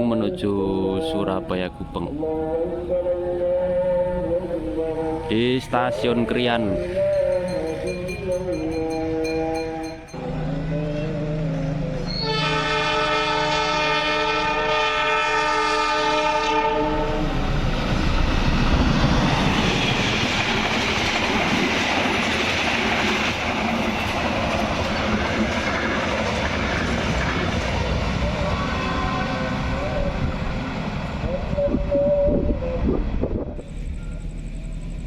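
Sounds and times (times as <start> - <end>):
passing train rushing: 0.0 - 35.0
train horn blast: 10.3 - 17.4, 28.1 - 30.7.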